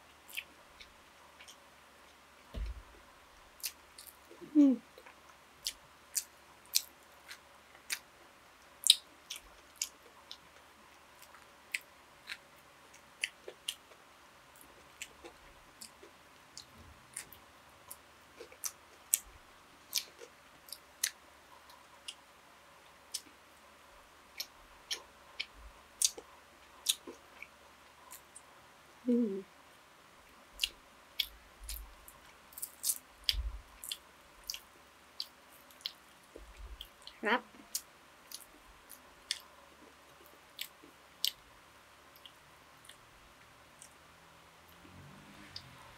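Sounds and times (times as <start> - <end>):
person humming: 4.4 - 4.9, 29.0 - 29.5.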